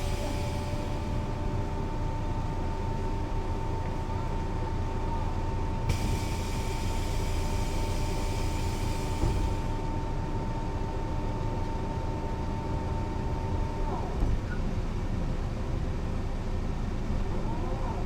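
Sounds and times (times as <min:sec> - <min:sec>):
bus running with high whine: 0:00.0 - 0:18.0
hiss: 0:05.9 - 0:09.8.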